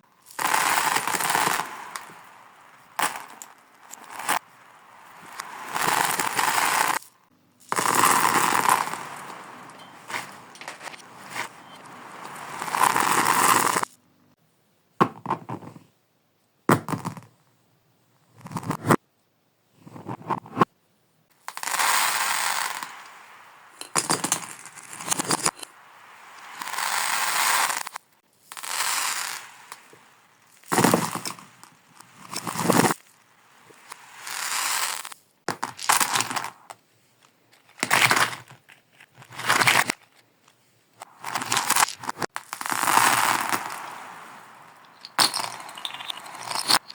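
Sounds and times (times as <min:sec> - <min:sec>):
beads and cubes rattling backward: 0:00.2 - 0:14.0, 0:21.4 - 0:36.7, 0:41.0 - 0:46.9.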